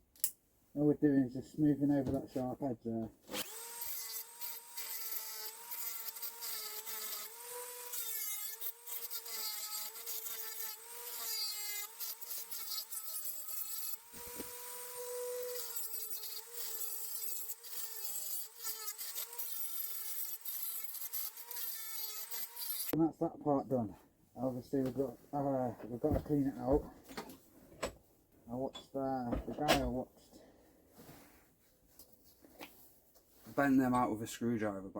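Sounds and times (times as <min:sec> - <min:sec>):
rotary tool motor whine: 0:03.4 - 0:22.9
sanding bit scraping metal: 0:03.4 - 0:23.0.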